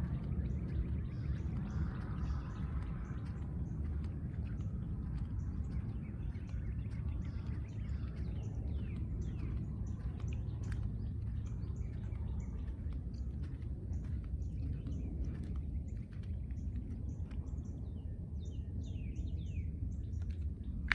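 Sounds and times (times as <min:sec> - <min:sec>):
small songbirds chirping: 0:00.0 - 0:20.9
steady low rumble: 0:00.0 - 0:20.9.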